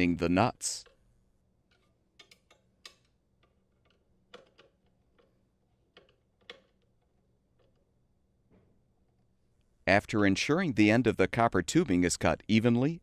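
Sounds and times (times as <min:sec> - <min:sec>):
small clicks of screws being tightened: 0:01.7 - 0:08.0.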